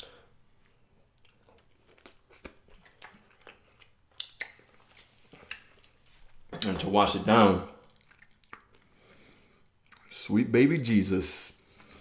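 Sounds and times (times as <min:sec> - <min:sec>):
chewing and biting food: 0:00.6 - 0:06.4, 0:07.8 - 0:09.1
wet mouth clicks and smacks: 0:01.1 - 0:06.7, 0:07.8 - 0:08.9, 0:09.8 - 0:10.1.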